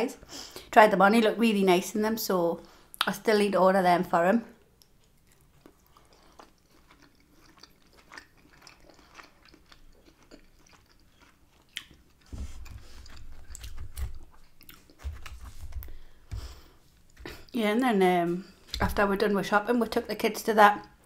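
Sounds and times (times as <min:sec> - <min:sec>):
person chewing food: 0:04.8 - 0:17.5.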